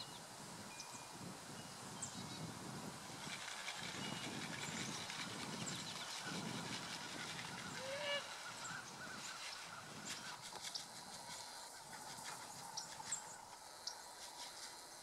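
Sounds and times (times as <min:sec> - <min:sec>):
poultry calling: 0:07.0 - 0:10.6.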